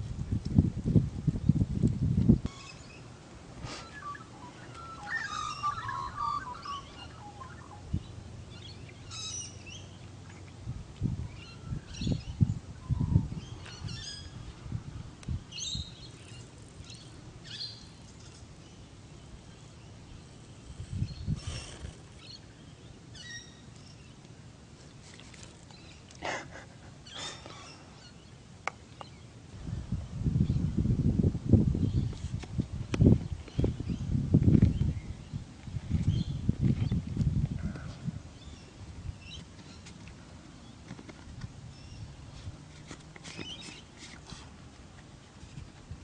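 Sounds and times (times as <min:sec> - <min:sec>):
birds chirping: 0:02.5 - 0:10.6
faint birdsong: 0:02.5 - 0:14.6, 0:15.3 - 0:24.3, 0:25.0 - 0:30.7, 0:33.2 - 0:44.4.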